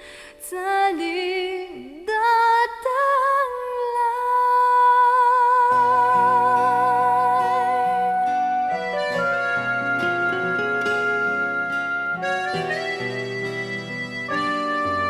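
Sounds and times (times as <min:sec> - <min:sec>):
high voice singing with vibrato: 0:00.3 - 0:08.5
accompaniment with bass line: 0:07.4 - 0:15.0.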